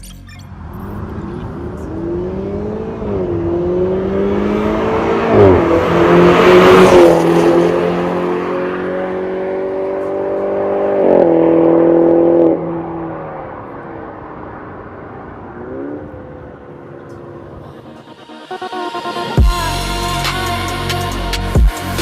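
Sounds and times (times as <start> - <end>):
car engine accelerating: 0.0 - 21.4.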